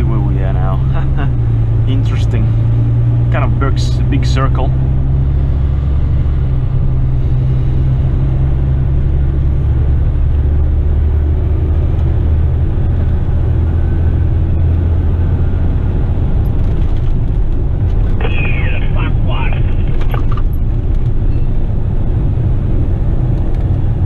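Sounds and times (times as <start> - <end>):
truck diesel engine droning: 0.0 - 16.5.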